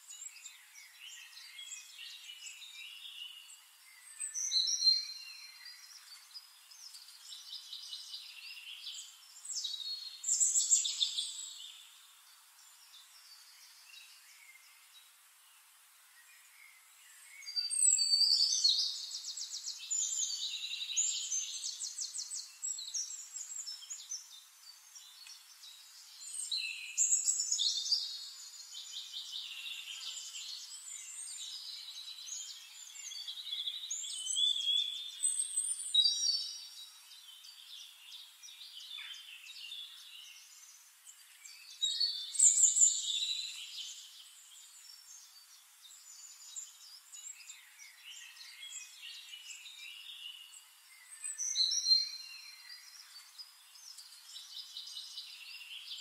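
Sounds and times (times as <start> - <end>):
faint steady hiss: 0.0 - 56.0
songbirds twittering: 0.0 - 56.0.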